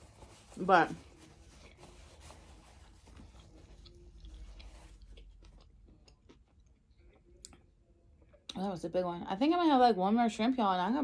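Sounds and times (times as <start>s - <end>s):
person chewing: 1.5s - 8.4s.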